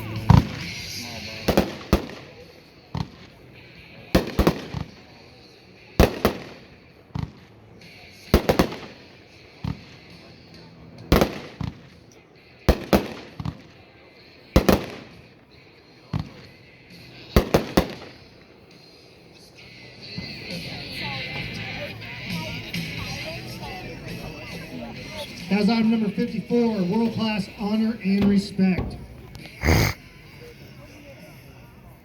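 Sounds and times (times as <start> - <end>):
firework reports: 0.1 - 5.1, 5.9 - 7.5, 8.2 - 10.1, 11.1 - 11.9, 14.4 - 15.4, 17.2 - 18.4, 25.2 - 30.0.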